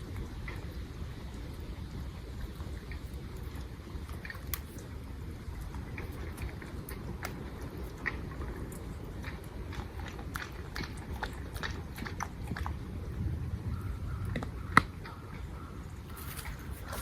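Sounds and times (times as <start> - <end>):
dry leaves and twigs crunching: 16.1 - 17.0.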